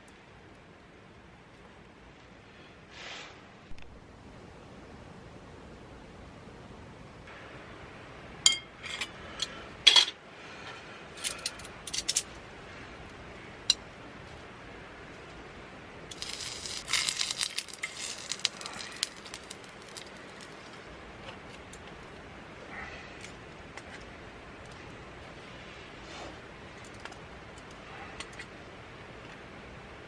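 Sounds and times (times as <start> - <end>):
tableware clinking: 8.5 - 9.2, 9.9 - 10.2.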